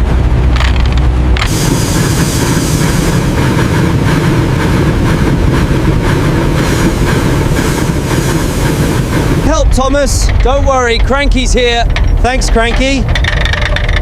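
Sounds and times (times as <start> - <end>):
train rumbling on rails: 0.0 - 14.0
light rail clatter: 0.5 - 14.0.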